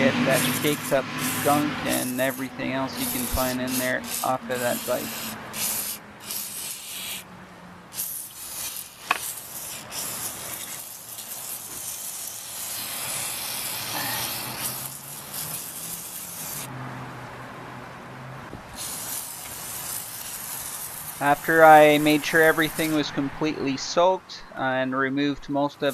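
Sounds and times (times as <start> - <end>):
aerosol can spraying: 0.0 - 7.3, 7.9 - 16.7, 18.6 - 23.1.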